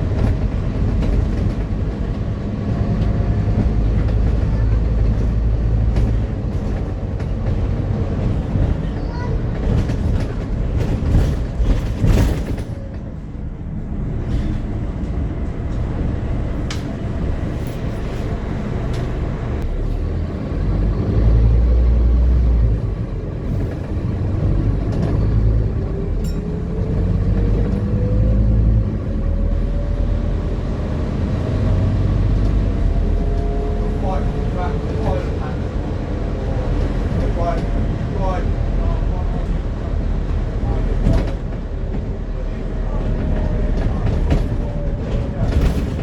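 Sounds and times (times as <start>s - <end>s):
bus engine rumble: 0.0s - 46.0s
knocks and rattles: 2.8s - 13.2s.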